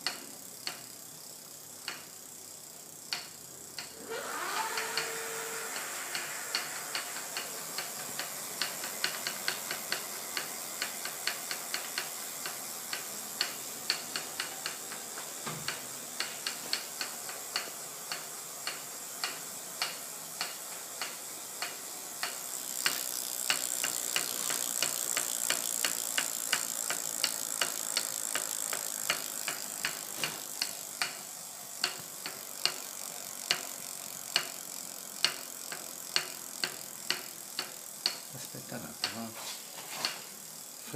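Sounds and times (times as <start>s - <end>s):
bicycle ticking: 0.0s - 39.4s, 40.0s - 40.9s
steady hiss: 5.0s - 40.9s.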